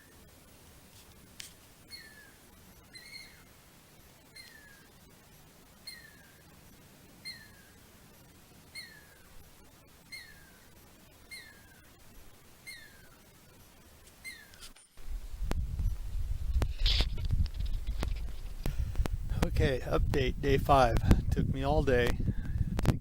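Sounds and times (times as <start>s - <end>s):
low rumbling noise: 15.0s - 23.0s.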